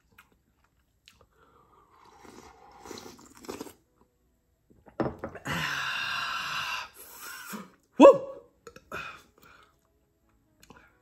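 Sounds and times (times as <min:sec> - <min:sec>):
person chewing softly: 0:00.0 - 0:04.1.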